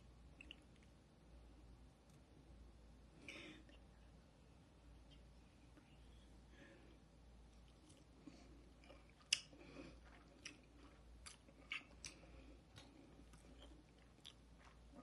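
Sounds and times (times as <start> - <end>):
faint chewing: 7.6 - 15.0.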